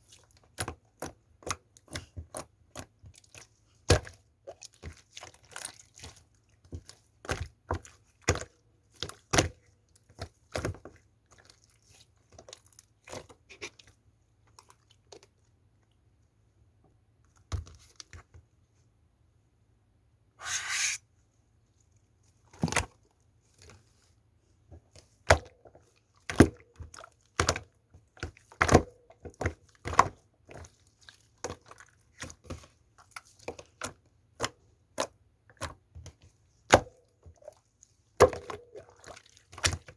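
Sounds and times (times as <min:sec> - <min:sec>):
slime squelch: 0:00.0 - 0:16.1, 0:20.4 - 0:21.0, 0:24.8 - 0:39.9.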